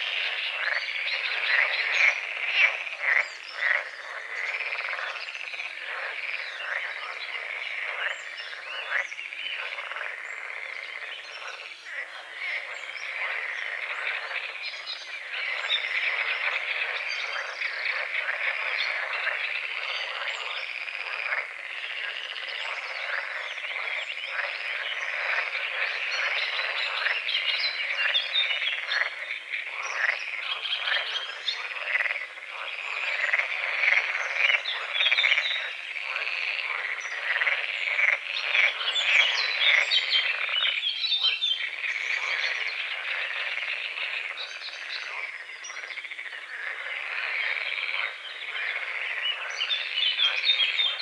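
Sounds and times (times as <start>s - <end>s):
frogs croaking in chorus: 0.0s - 51.0s.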